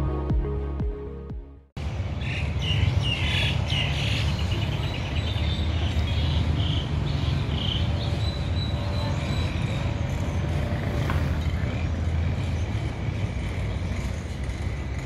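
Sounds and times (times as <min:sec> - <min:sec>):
birds chirping: 0:02.0 - 0:10.7.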